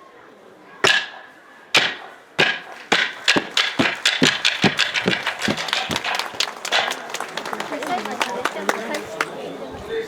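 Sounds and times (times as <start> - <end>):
wooden clappers clacking: 1.8 - 9.3.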